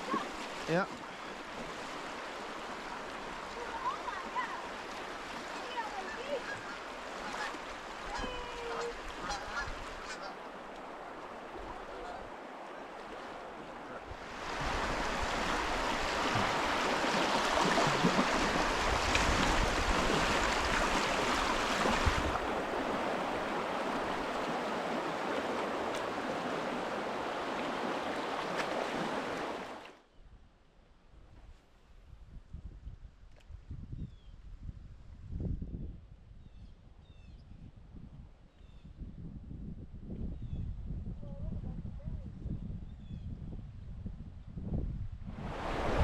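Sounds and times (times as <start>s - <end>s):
river water rushing: 0.0s - 30.0s, 45.4s - 46.0s.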